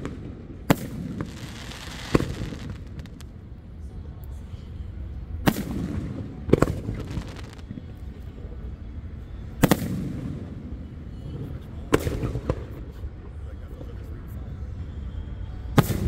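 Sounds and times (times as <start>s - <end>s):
firework shells booming: 0.0s - 3.3s
rolling echo: 0.0s - 3.9s.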